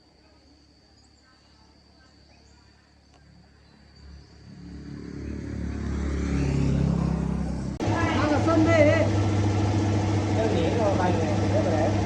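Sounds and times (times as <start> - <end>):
vehicle engine rumbling: 3.0 - 12.0.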